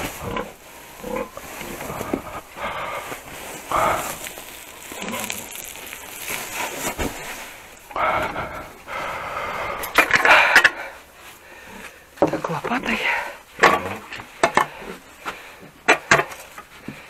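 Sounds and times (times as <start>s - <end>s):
sawdust rustling and scraping: 0.0s - 13.0s.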